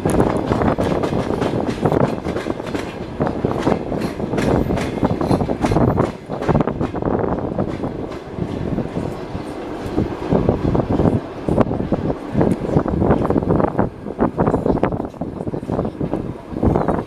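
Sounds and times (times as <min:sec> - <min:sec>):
wheels clacking over rails: 0:00.0 - 0:13.8
train wheels rumbling on rails: 0:00.0 - 0:17.0.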